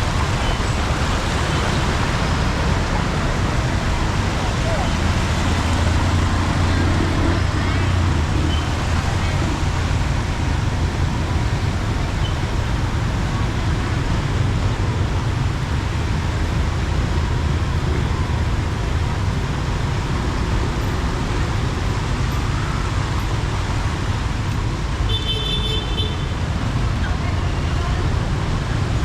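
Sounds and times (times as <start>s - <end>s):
heavy rain falling: 0.0s - 24.5s
road traffic noise: 0.0s - 29.0s.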